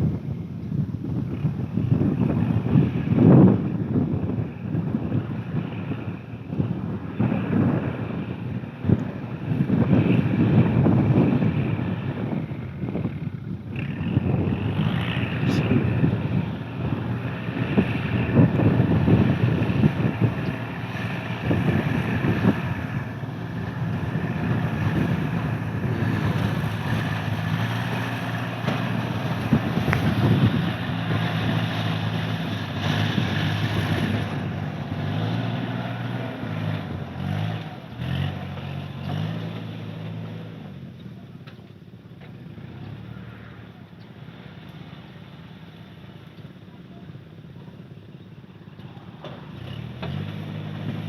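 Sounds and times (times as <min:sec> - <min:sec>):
wind buffeting microphone: 0:00.0 - 0:38.4
motor engine running: 0:12.2 - 0:35.0.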